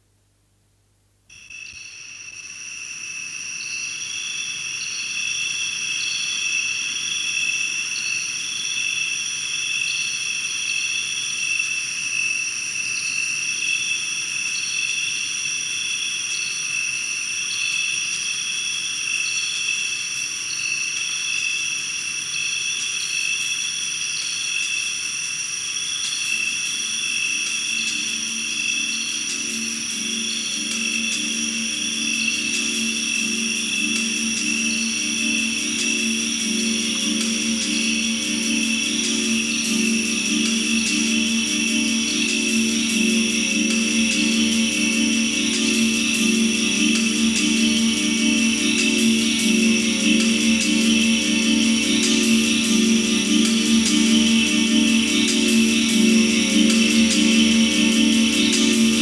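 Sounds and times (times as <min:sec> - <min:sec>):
insects trilling: 0:01.4 - 0:59.0
low musical tones: 0:27.7 - 0:59.0.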